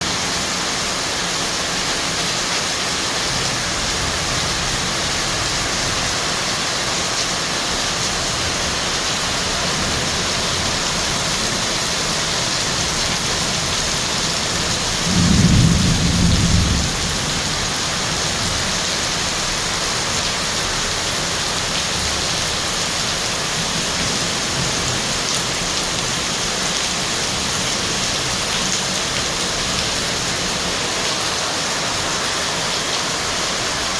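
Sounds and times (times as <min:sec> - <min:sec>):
heavy rain pouring: 0:00.0 - 0:33.9
low thunder clap: 0:15.0 - 0:17.6.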